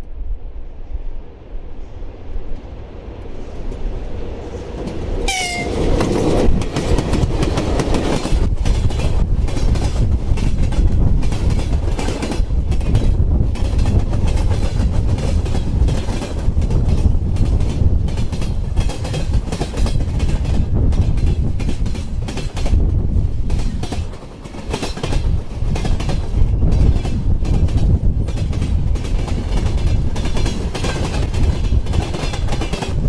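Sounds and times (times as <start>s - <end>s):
train rumbling past: 0.0s - 33.0s
wind buffeting microphone: 0.0s - 33.0s
train horn blast: 5.2s - 5.9s
wheels clacking over rail joints: 23.4s - 33.0s.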